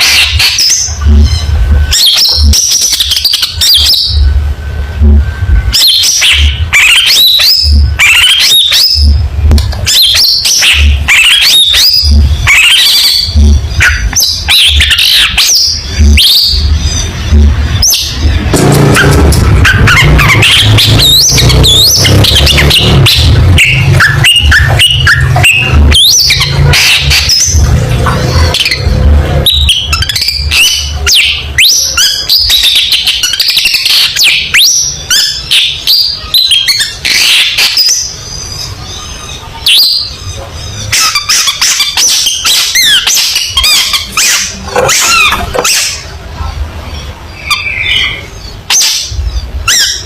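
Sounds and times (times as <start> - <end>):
bird singing chattering notes: 5.7 - 46.2
low rumble: 15.7 - 30.0.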